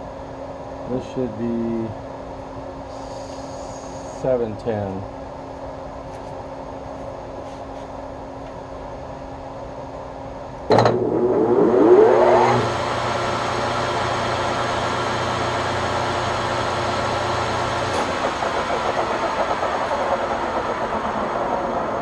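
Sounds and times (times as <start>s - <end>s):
steady hum: 0.0s - 22.0s
lathe motor whining: 10.7s - 22.0s.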